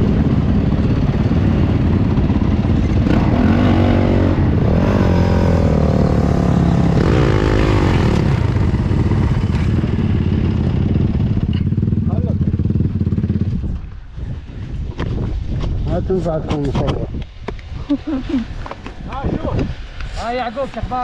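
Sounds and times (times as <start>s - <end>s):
dirt bike engine revving: 2.7s - 13.6s.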